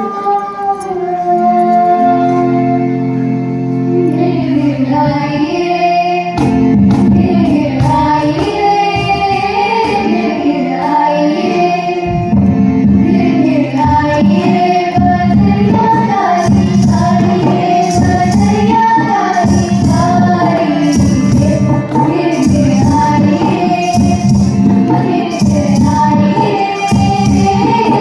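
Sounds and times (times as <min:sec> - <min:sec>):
held-note drone accompaniment: 0:00.0 - 0:28.0
girls singing folk song: 0:03.9 - 0:28.0
percussion beats: 0:06.4 - 0:28.0.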